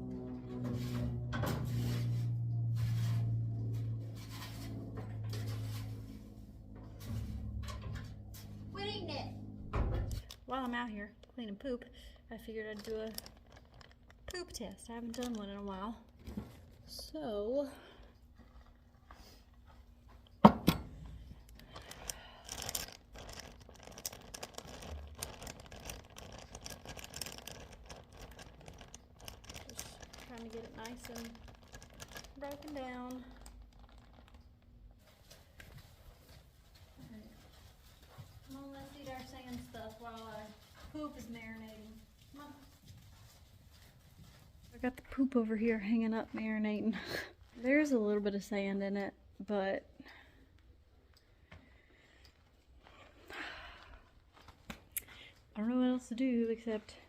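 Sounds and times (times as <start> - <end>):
steady low hum: 0.0 - 48.4
scraping on barn floor: 0.2 - 8.7
bag crinkling and rustling: 12.6 - 16.9, 21.5 - 35.8.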